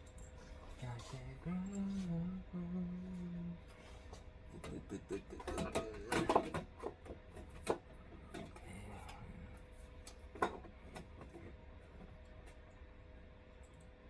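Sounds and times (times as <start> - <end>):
faint low hum: 0.0 - 14.0
parts clicking and knocking: 5.4 - 8.5.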